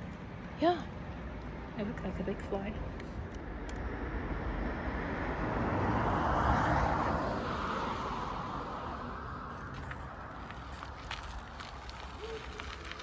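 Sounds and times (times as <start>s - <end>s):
car passing by: 3.8s - 13.0s.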